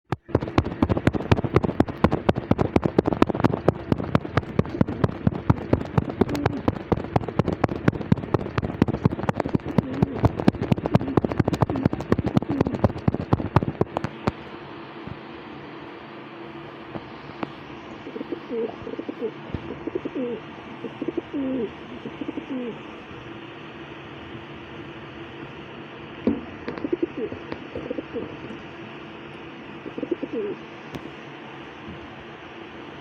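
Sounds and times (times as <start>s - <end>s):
rapid clicking and tapping: 0.0s - 14.5s, 26.2s - 28.4s
low hum: 0.1s - 33.0s.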